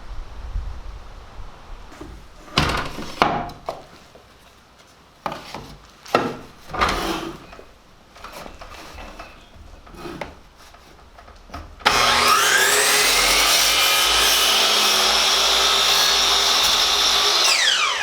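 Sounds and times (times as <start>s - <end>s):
wood sliding on wood: 5.3s - 11.0s.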